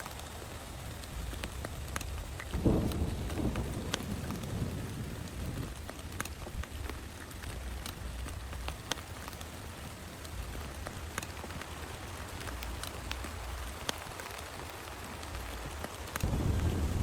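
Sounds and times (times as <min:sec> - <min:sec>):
rain falling: 0:00.0 - 0:17.0
raindrops clicking on plastic tarp: 0:00.0 - 0:17.0
thunder rolling: 0:01.1 - 0:08.9, 0:15.3 - 0:17.0.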